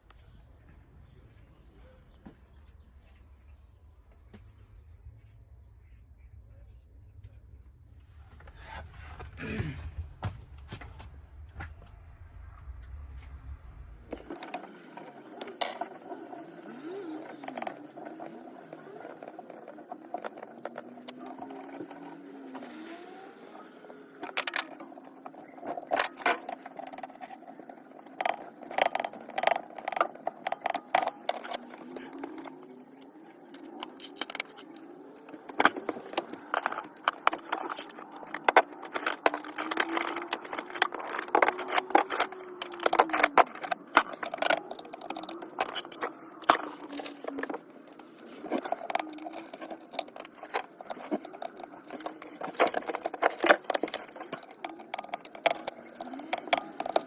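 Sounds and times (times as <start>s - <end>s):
faint rising and falling tone: 10.0s - 57.0s
metal parts and tools clattering: 14.1s - 57.0s.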